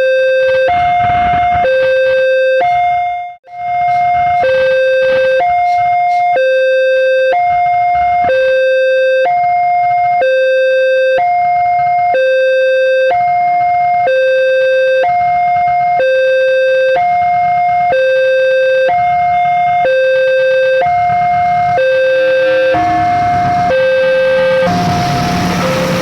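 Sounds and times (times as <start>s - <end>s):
two-tone crossing alarm: 0.0s - 26.0s
low traffic rumble: 17.4s - 26.0s.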